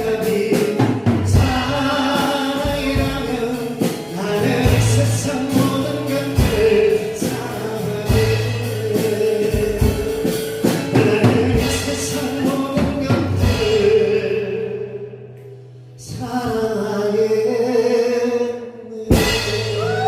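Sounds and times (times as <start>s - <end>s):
voices singing held notes: 0.0s - 15.0s
acoustic guitars strumming: 0.0s - 20.0s.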